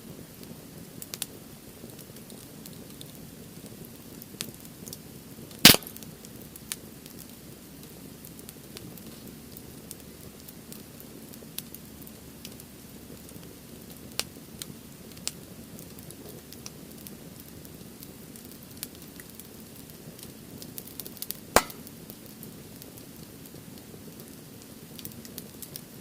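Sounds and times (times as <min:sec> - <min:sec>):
fire crackling and popping: 0:00.0 - 0:26.0.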